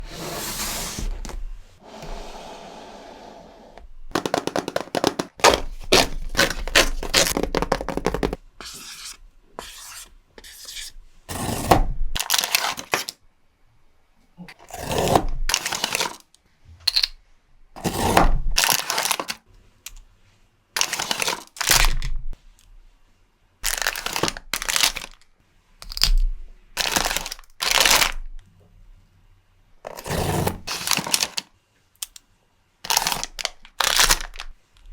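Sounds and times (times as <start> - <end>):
packaging tearing and crinkling: 4.3 - 8.3, 23.6 - 25.2, 26.8 - 28.2, 30.7 - 31.4, 32.9 - 34.5.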